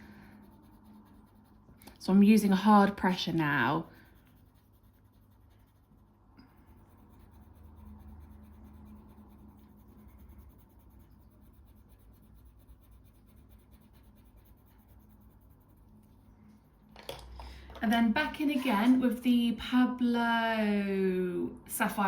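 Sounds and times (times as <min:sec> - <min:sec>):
colour pencil scratching on paper: 0:00.0 - 0:16.7.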